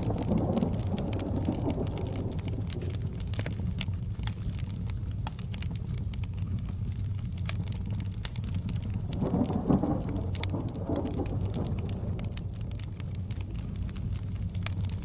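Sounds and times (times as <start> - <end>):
thunder rolling: 0.0 - 4.6, 9.0 - 15.0
low rumble: 0.0 - 15.0
steady rain: 0.0 - 15.0
wood fire crackling: 0.0 - 15.0.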